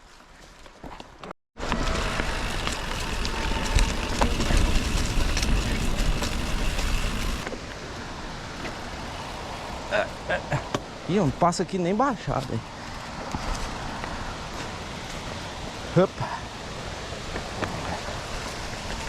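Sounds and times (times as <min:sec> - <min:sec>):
bike clicks and rattles: 0:00.8 - 0:07.6, 0:17.4 - 0:19.0
deep rumble: 0:01.7 - 0:07.4
wind buffeting microphone: 0:01.7 - 0:07.5.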